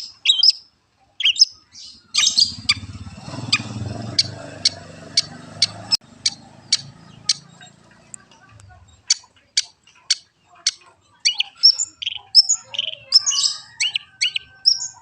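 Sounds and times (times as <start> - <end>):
bird harsh squawky notes: 1.2 - 7.7
bird sharp chips: 4.1 - 15.0.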